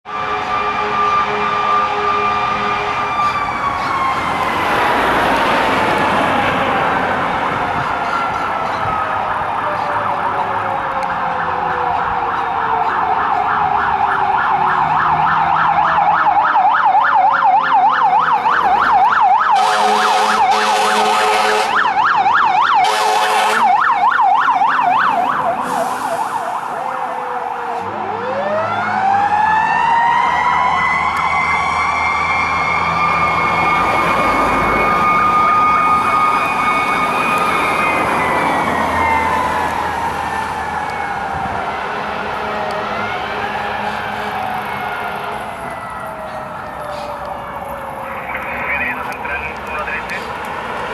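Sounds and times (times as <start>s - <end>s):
mechanical siren wailing: 0.1s - 49.7s
electronic siren warbling: 7.6s - 49.4s
air horn blasts: 19.5s - 21.9s, 22.8s - 23.8s.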